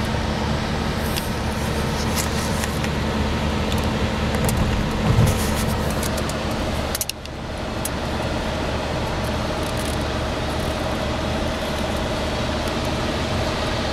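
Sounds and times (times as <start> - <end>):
wind and road noise in car: 0.0 - 13.9.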